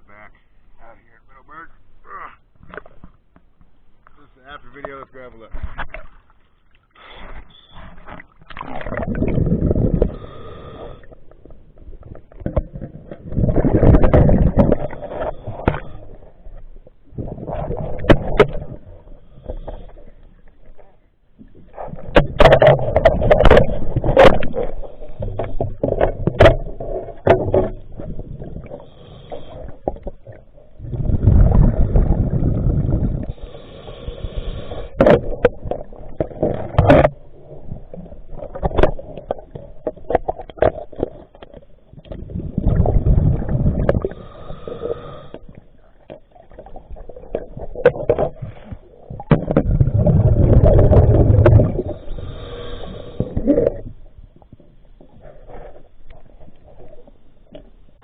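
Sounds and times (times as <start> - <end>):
bubbles rushing underwater: 8.4 - 10.2, 12.3 - 15.8, 21.7 - 28.8, 29.7 - 33.3, 41.9 - 44.3, 46.1 - 52.3.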